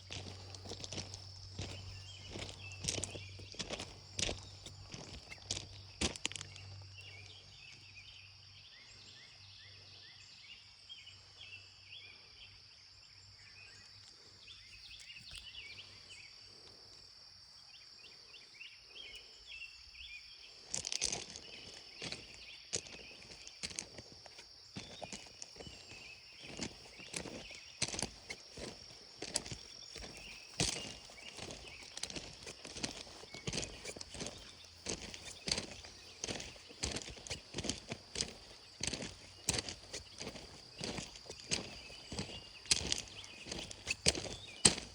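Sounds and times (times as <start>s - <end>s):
crunching footsteps: 0.0s - 7.9s, 20.1s - 44.9s
high insect drone: 0.0s - 44.9s
small chirps: 18.9s - 44.9s.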